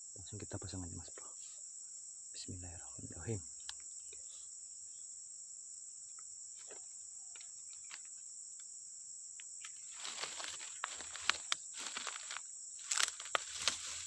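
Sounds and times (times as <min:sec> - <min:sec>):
insects chirring: 0:00.0 - 0:14.0
faint ticks: 0:03.6 - 0:04.3.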